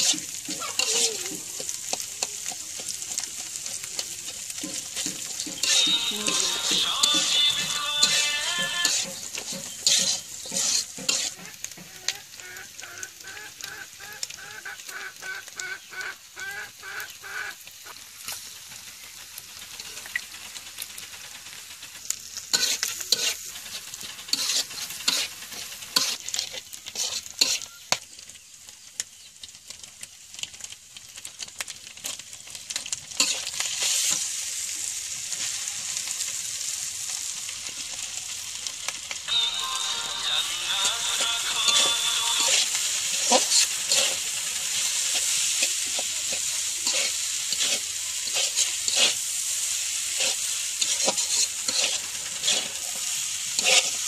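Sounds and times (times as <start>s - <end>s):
metal spatula scraping wok: 0.0s - 12.8s, 21.6s - 28.0s, 32.8s - 54.0s
eggs sizzling in hot oil: 0.0s - 54.0s.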